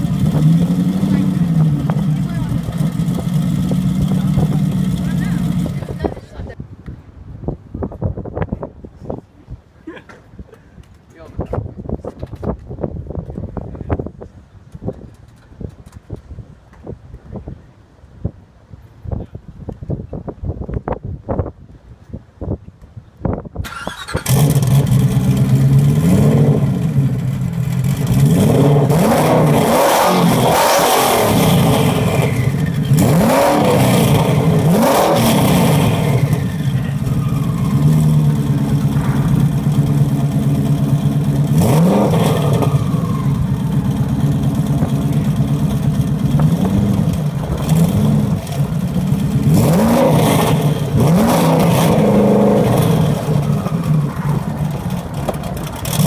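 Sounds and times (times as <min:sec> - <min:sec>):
car engine idling and revving: 0:00.0 - 0:06.6, 0:23.7 - 0:56.0.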